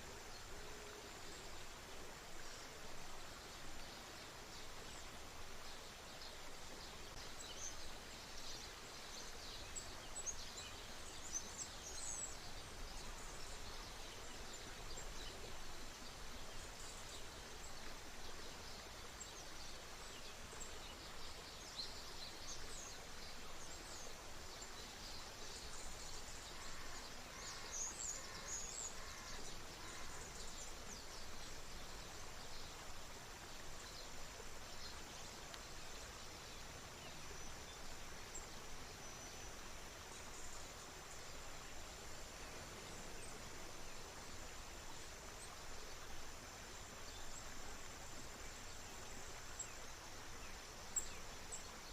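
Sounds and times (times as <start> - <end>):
flowing water: 0.0 - 51.9.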